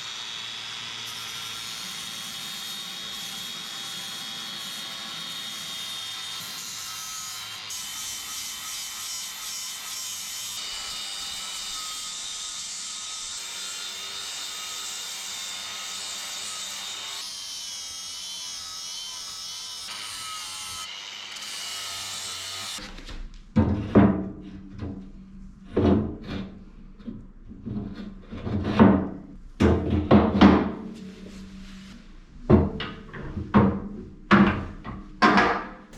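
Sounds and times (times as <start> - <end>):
angle grinder grinding metal: 0.0 - 22.8.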